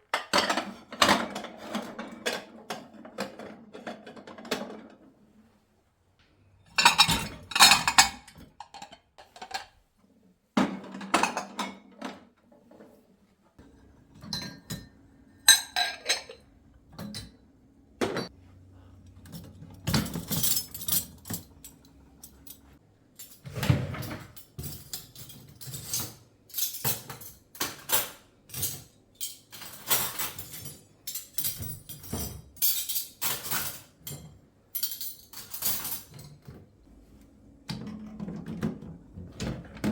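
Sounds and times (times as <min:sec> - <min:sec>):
dishes and cutlery clinking: 0:06.7 - 0:09.7, 0:13.6 - 0:17.4, 0:19.2 - 0:36.6.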